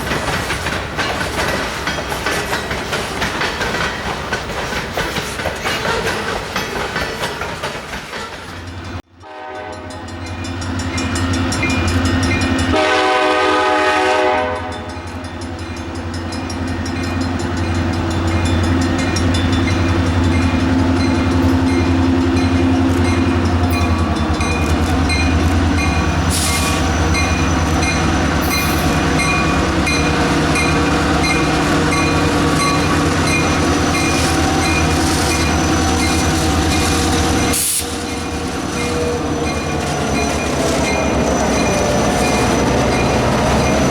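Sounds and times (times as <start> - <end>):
train wheel rumble: 0.0 - 43.9
train air horn: 9.2 - 9.9, 12.7 - 14.9
locomotive engine drone: 14.7 - 43.9
bell ringing: 26.9 - 43.9.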